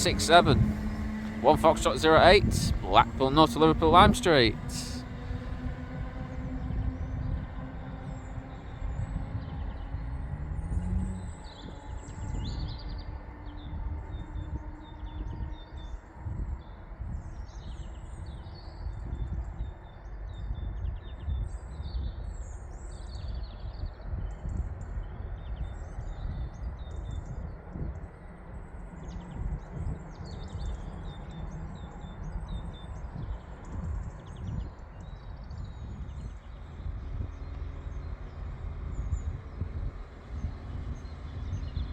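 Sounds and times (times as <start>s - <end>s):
low rumble: 0.0s - 19.5s
small birds chirping: 17.4s - 41.9s.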